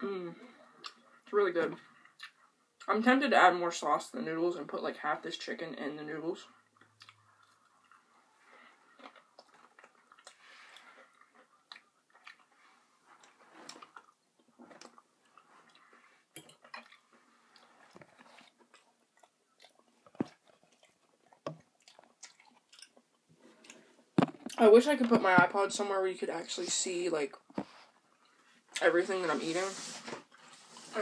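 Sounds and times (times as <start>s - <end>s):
chewing with wet crunches: 6.6s - 24.6s.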